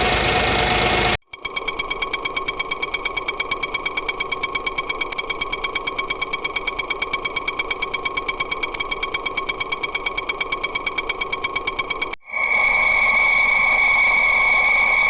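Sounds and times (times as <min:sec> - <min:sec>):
steady high whine: 0:00.0 - 0:01.2
engine ticking: 0:00.0 - 0:12.2.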